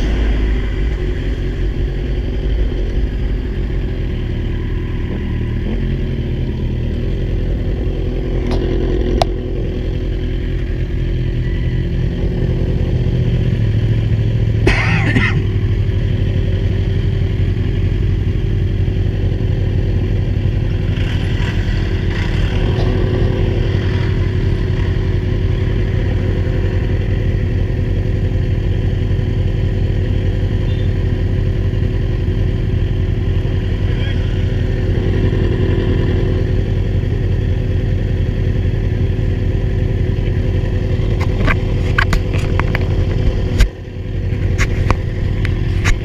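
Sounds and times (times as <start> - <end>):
rush of noise: 0.0 - 12.7, 33.0 - 37.1
motorcycle engine cruising: 0.0 - 46.0.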